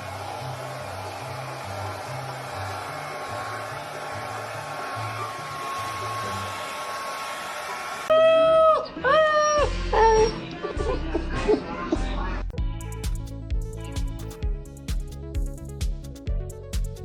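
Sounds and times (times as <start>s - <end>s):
background music with bass line: 9.6s - 17.0s.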